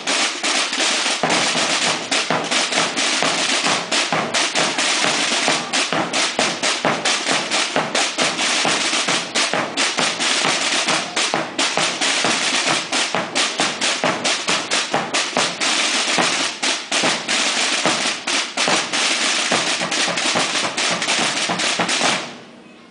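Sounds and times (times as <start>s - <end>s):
snare drum corps playing: 0.0s - 22.4s.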